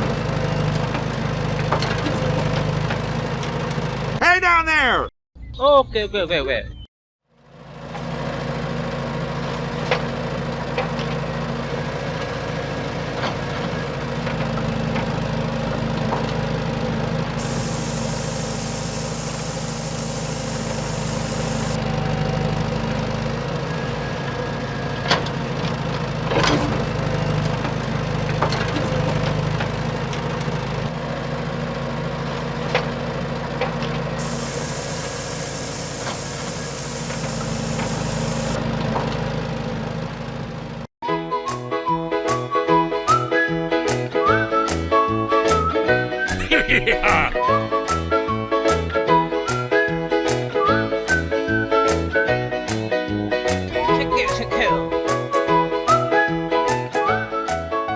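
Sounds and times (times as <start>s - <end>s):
small tractor engine running: 0.0s - 4.2s, 7.3s - 40.9s.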